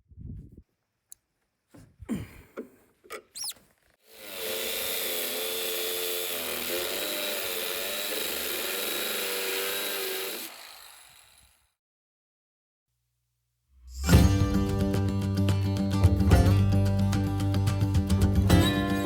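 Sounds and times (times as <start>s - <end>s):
angle grinder grinding steel: 3.4s - 11.6s.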